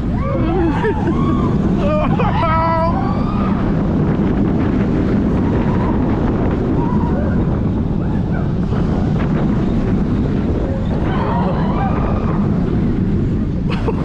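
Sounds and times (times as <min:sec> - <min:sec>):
riders crying out: 0:00.0 - 0:04.0, 0:05.3 - 0:08.9, 0:10.5 - 0:13.3
roller coaster rumble: 0:00.0 - 0:14.0
wind buffeting microphone: 0:00.0 - 0:14.0.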